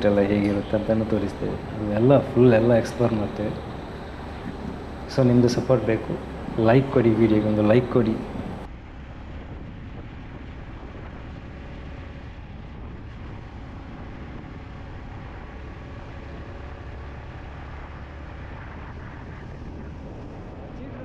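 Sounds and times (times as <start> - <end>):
motorcycle engine: 0.0 - 8.7
road and wind noise: 0.0 - 21.0.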